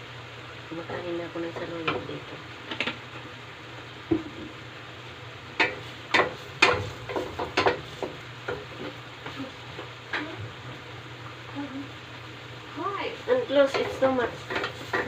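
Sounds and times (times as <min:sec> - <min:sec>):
oil sizzling in a frying pan: 0:00.0 - 0:15.0
spatula scraping a pan: 0:13.2 - 0:15.0.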